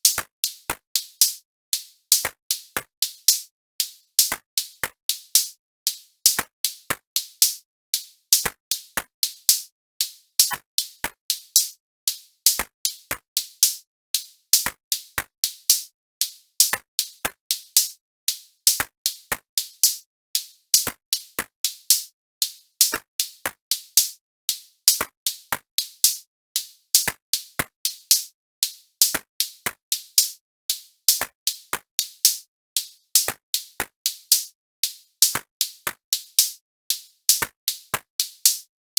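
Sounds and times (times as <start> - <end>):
drum machine beat: 0.0 - 26.2, 29.0 - 36.6.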